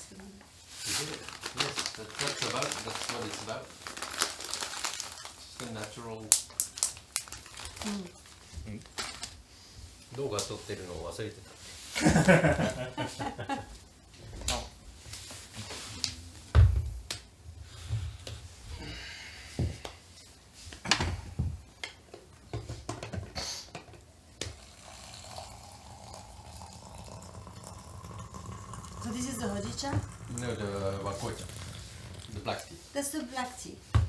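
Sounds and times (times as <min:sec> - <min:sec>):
heavy thump on a table: 0:16.5 - 0:17.0.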